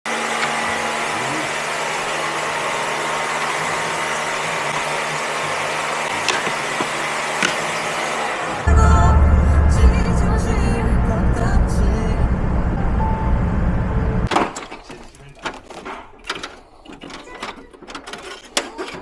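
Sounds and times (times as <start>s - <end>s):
loud bass-heavy music: 8.7s - 14.3s.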